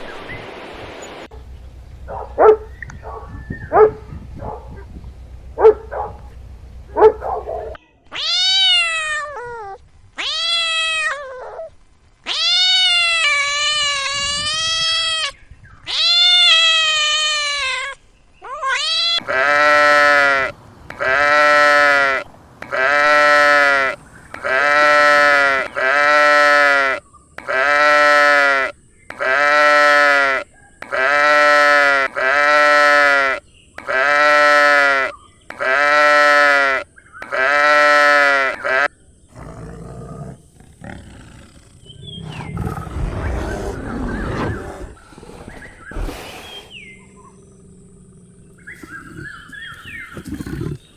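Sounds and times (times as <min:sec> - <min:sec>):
animal wavering cries: 0:18.5 - 0:50.8
animal short bleats: 0:18.7 - 0:38.9.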